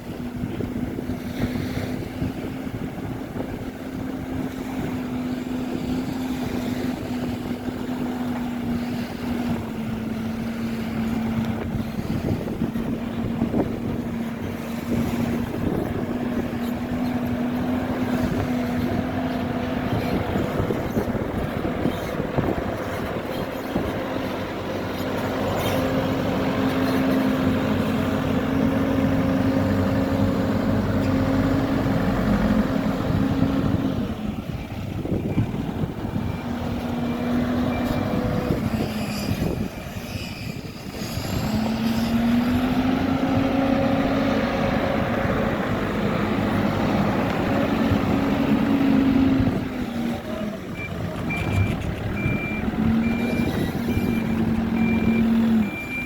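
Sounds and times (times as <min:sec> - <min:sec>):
backhoe diesel engine working: 0:00.0 - 0:56.0
reversing alarm beeping: 0:50.8 - 0:56.0.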